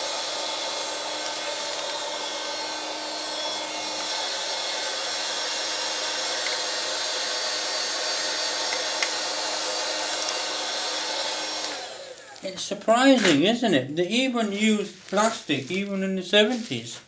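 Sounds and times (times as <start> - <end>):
vacuum cleaner humming: 0.0 - 13.2.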